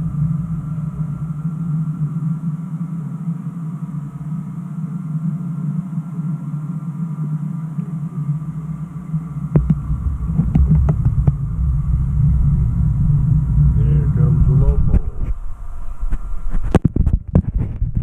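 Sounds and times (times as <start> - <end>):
model train humming: 0.0 - 16.5
model train rumbling: 9.6 - 16.0.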